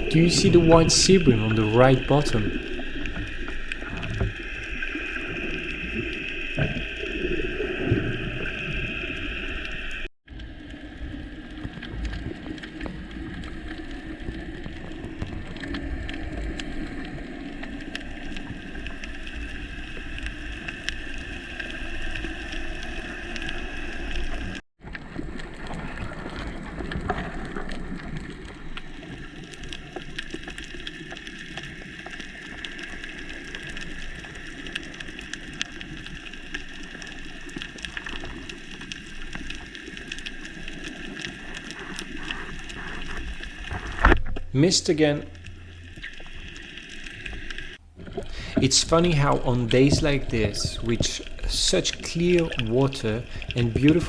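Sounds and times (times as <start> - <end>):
underwater hiss with crackling clicks: 47.6 - 54.0.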